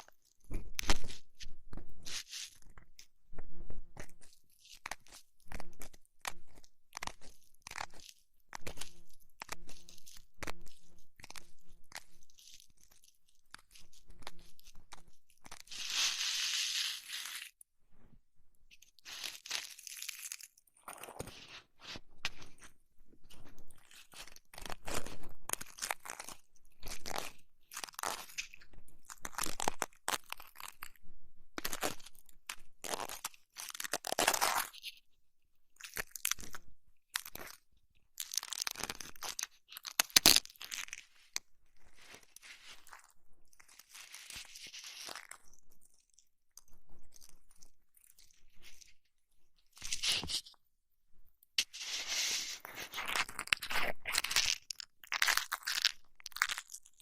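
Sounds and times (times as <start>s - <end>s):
rubbing and scratching near microphone: 0.4s - 7.3s, 13.6s - 18.1s, 20.8s - 25.4s, 49.8s - 50.6s, 51.6s - 54.4s.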